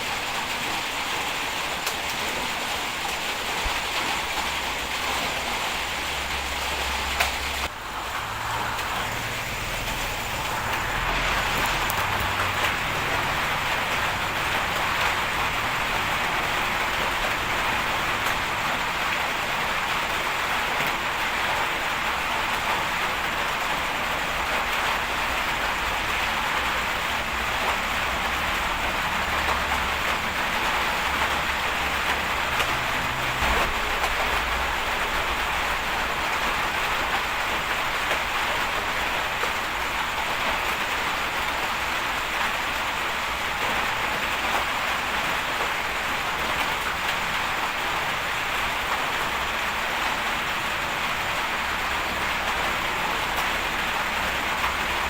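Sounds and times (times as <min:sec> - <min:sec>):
rain hiss: 0:00.0 - 0:55.0.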